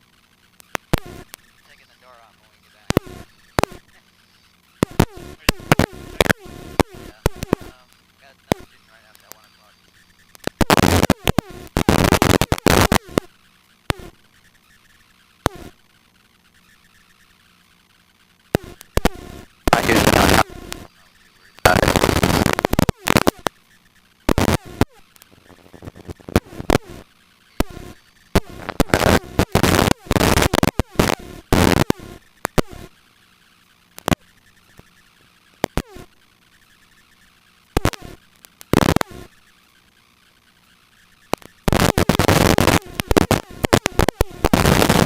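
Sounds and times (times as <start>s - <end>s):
harsh bursts of intercom noise: 0.9s - 4.1s, 4.8s - 13.2s, 18.6s - 23.5s, 25.9s - 32.2s, 41.7s - 45.0s.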